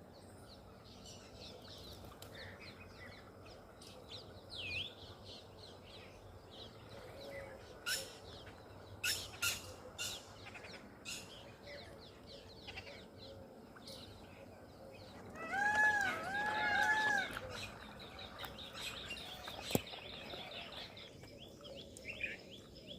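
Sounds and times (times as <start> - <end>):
birds chirping and calling: 0.5 - 22.9
repeated arching bird calls: 7.0 - 14.2.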